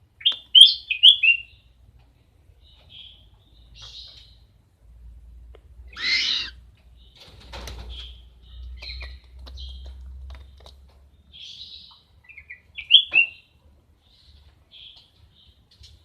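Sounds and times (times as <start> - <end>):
owl chirping and squeaking: 5.9 - 6.6.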